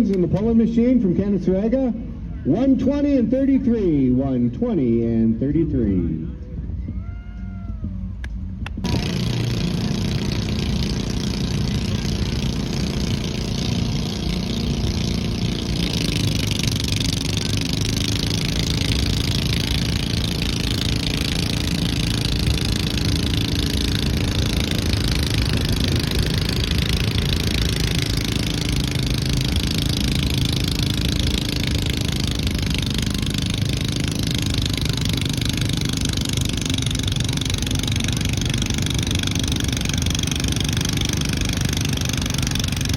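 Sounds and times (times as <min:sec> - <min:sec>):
tractor engine running: 0:08.0 - 0:42.9.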